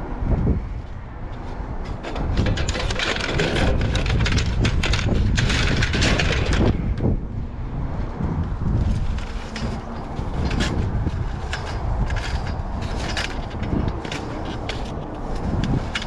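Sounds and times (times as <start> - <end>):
steady low rumble: 0.0 - 16.0
debris crunching and clattering: 1.8 - 6.9, 8.8 - 16.0.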